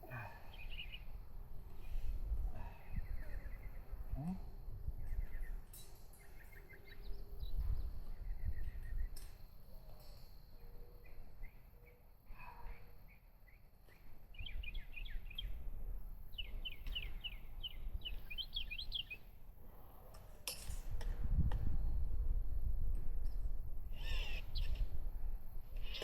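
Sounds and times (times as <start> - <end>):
bird chirping: 0.1 - 1.1, 5.0 - 15.6, 16.3 - 19.4, 23.9 - 24.8.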